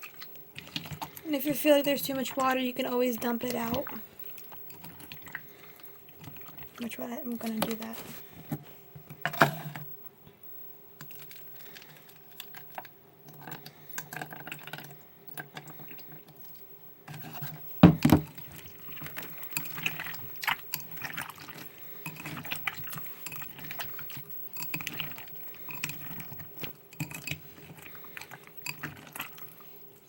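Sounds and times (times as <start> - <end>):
slime squelching: 0.0 - 8.4, 18.3 - 30.0.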